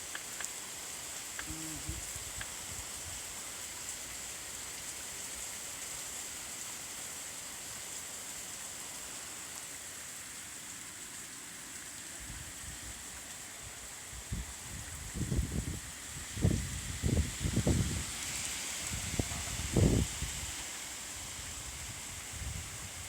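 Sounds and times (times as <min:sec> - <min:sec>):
heavy rain hissing: 0:00.0 - 0:23.0.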